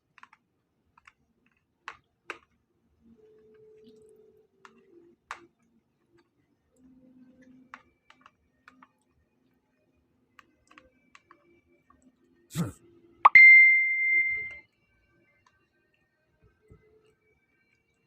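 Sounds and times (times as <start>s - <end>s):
faint light clicks and taps: 3.2s - 9.2s, 10.3s - 12.1s
low steady hum: 13.3s - 14.6s.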